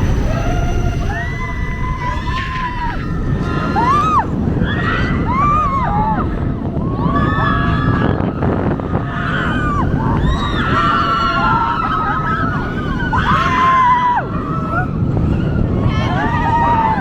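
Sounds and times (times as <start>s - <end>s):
riders screaming and whooping: 0.0s - 17.0s
roller coaster running on track: 0.0s - 17.0s
wind rumble: 0.0s - 17.0s.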